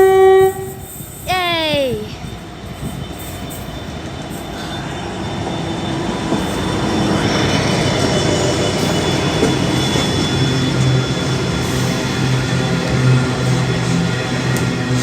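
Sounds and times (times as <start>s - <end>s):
freight train passing: 0.0s - 15.0s
wheel squeal: 2.9s - 12.0s.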